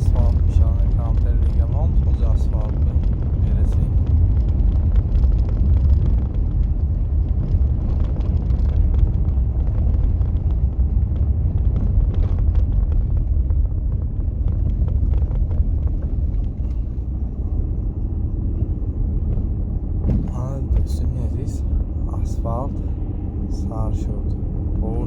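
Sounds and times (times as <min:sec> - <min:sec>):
vehicle road noise rumble: 0:00.0 - 0:25.0.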